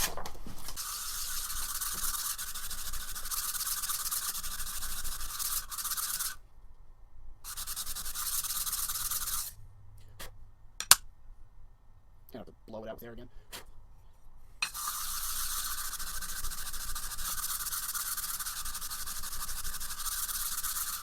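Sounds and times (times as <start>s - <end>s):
hand sanding rasp: 0.8s - 6.4s, 7.5s - 9.6s, 14.6s - 21.0s.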